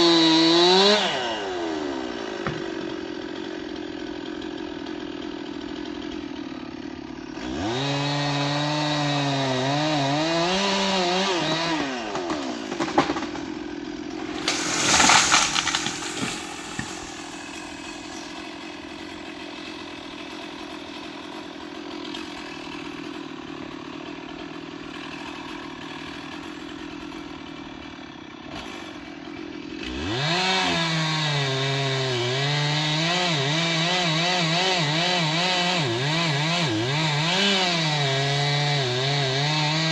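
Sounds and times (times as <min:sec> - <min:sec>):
chainsaw idling and revving: 0:00.0 - 0:39.9
loud crash: 0:14.4 - 0:17.4.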